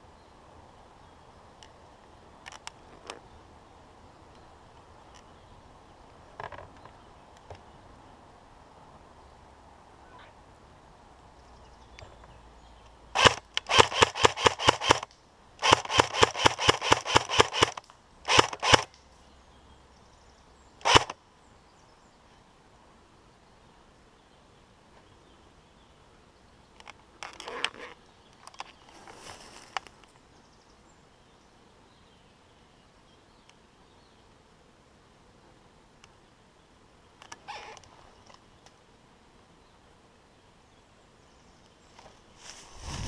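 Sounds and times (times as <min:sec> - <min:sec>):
airsoft gun shots: 0:13.2 - 0:18.9, 0:20.8 - 0:21.2.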